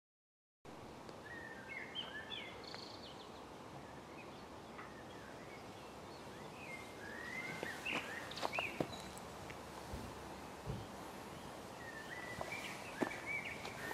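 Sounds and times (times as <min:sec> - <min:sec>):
steady outdoor hiss: 0:00.7 - 0:13.9
small birds chirping: 0:01.1 - 0:13.9.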